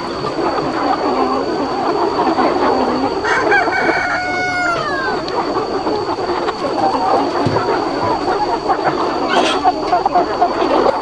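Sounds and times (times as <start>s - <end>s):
chickens clucking: 0.0s - 11.0s
rooster crowing: 2.4s - 8.4s.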